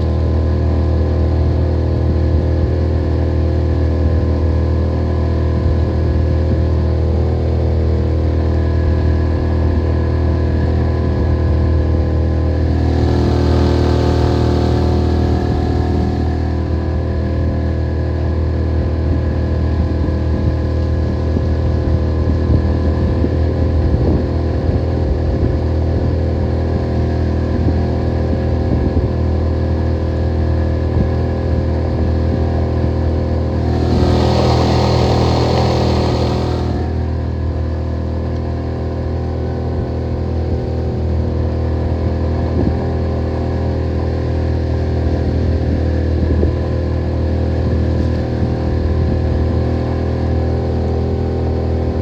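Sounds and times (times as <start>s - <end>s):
outboard motor running: 11.8s - 19.9s, 33.4s - 37.8s.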